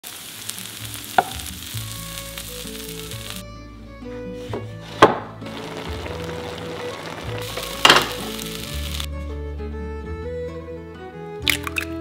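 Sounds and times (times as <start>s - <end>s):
food sizzling in oil: 0.0s - 3.4s, 5.4s - 9.1s
slow melodic background music: 0.4s - 12.0s.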